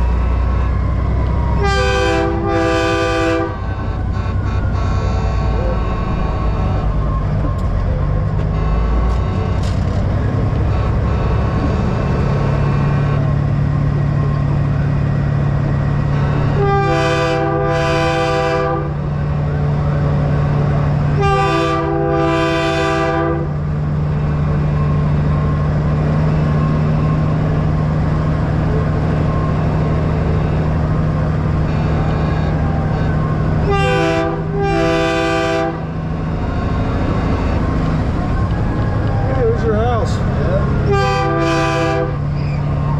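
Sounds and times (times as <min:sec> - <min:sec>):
air horn blasts: 0:00.0 - 0:07.0, 0:08.4 - 0:13.3, 0:16.1 - 0:19.0, 0:21.1 - 0:23.6, 0:31.6 - 0:37.7, 0:40.8 - 0:42.4
diesel truck engine running: 0:00.0 - 0:42.9.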